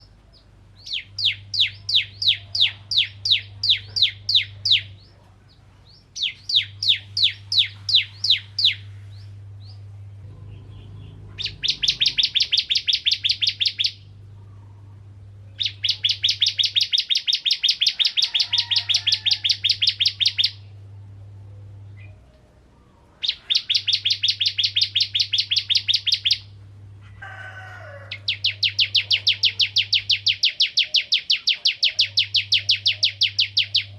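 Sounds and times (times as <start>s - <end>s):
bird singing sharp chirps: 6.2s - 14.0s, 15.6s - 20.7s, 23.2s - 26.5s.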